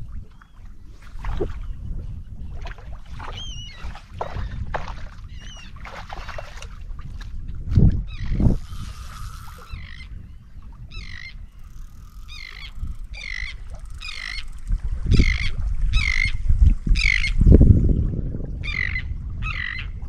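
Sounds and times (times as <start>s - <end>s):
bird calling: 5.2s - 5.8s, 8.1s - 16.4s, 17.0s - 17.4s.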